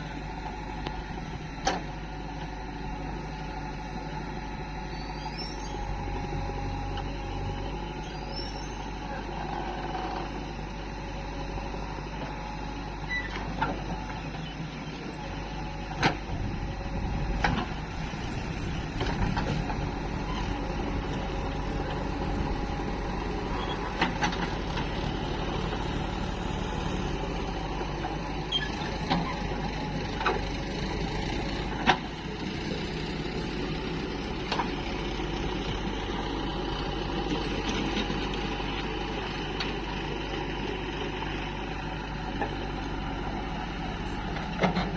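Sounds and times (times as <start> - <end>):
diesel engines running: 0.0 - 44.9.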